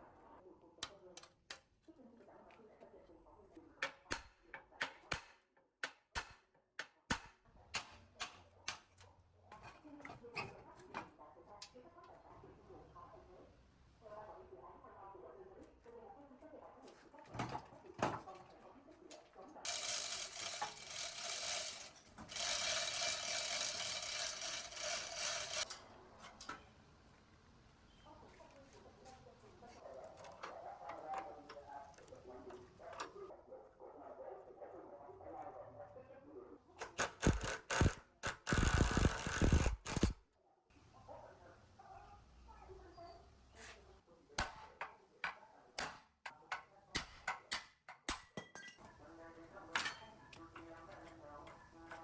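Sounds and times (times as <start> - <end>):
power tool grinding metal: 19.7 - 25.7, 37.0 - 40.1.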